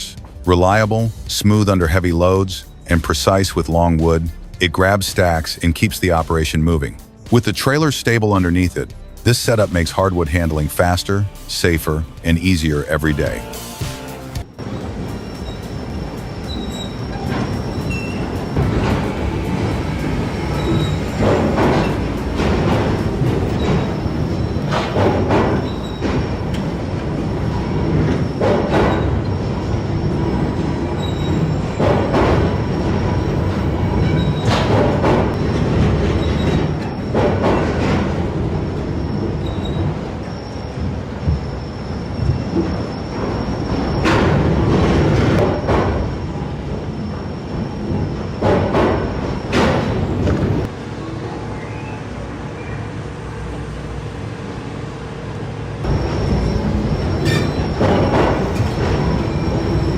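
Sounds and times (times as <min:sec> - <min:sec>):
machinery clanking: 0:00.0 - 0:51.4, 0:55.4 - 0:59.9
heavy machinery running: 0:00.0 - 0:59.9
thin metallic squeals: 0:15.1 - 0:21.2, 0:25.6 - 0:26.6, 0:39.0 - 0:44.1, 0:55.9 - 0:59.9
short metallic squeals: 0:15.1 - 0:22.2, 0:23.5 - 0:26.7, 0:27.3 - 0:37.9, 0:38.9 - 0:50.1, 0:55.9 - 0:59.9
thin high whine: 0:55.8 - 0:59.9.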